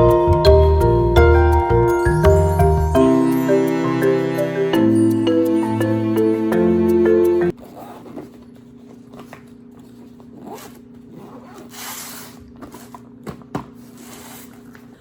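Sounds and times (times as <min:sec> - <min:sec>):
zipper pulled: 0:07.6 - 0:13.1.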